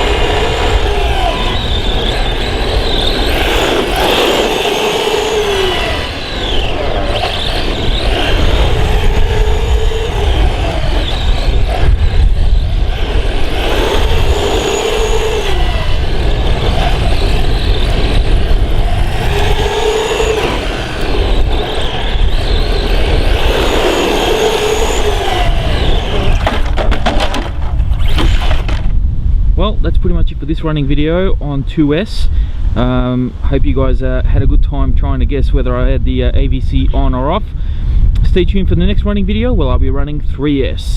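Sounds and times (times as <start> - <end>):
electric motor whining: 0.0 - 29.0.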